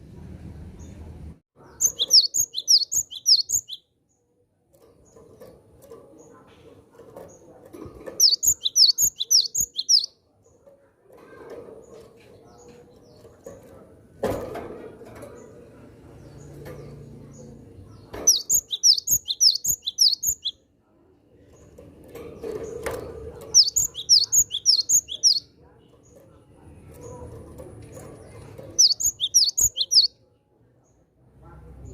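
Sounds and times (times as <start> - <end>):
bird rapid high chirps: 1.7 - 3.9, 8.2 - 10.1, 18.2 - 20.6, 23.6 - 25.5, 28.7 - 30.1.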